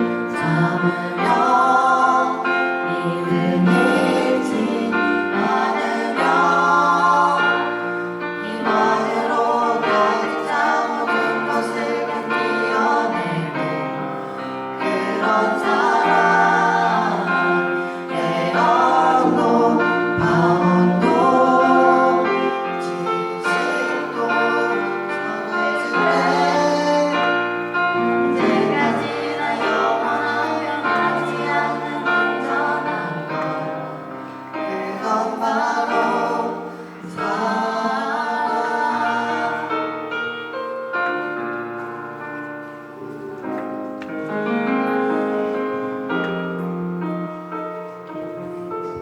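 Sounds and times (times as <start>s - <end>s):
group singing praise song: 0.0s - 40.1s
instrumental accompaniment: 0.0s - 49.0s.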